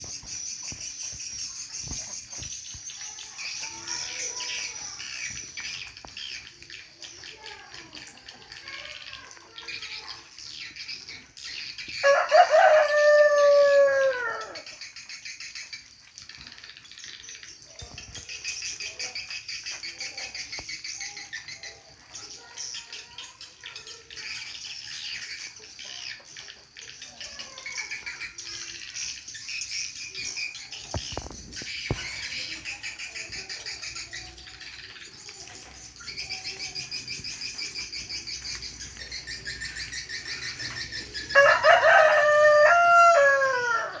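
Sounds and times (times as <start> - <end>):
rooster crowing: 12.0 - 14.7, 41.2 - 44.0.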